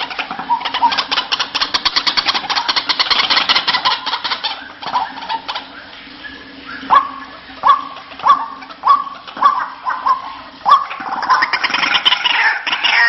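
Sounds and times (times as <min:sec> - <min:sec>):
bird rattling chatter: 0:00.0 - 0:05.7, 0:10.9 - 0:13.0.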